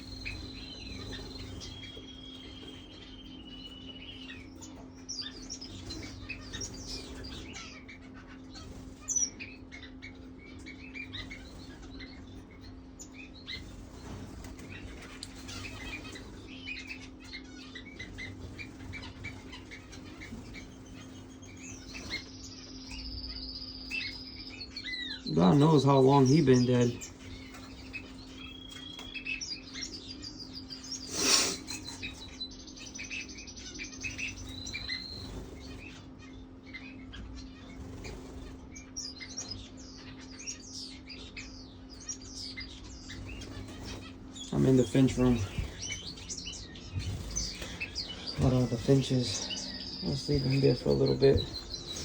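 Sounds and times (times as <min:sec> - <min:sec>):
caged birds chirping: 0:00.0 - 0:52.0
low hum: 0:40.8 - 0:52.0.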